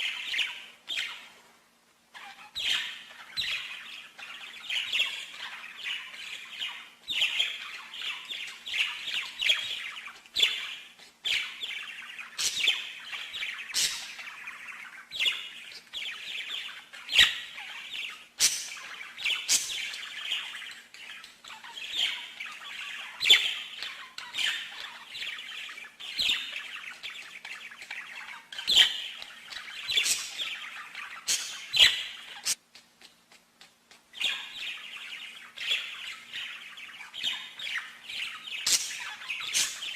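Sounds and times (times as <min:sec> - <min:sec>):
faint steady hum: 0:00.0 - 0:39.9
songbird warbling: 0:34.2 - 0:39.9.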